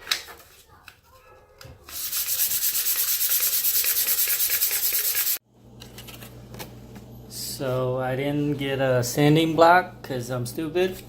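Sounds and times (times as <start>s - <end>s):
sandpaper rubbing on plastic: 1.9s - 5.4s.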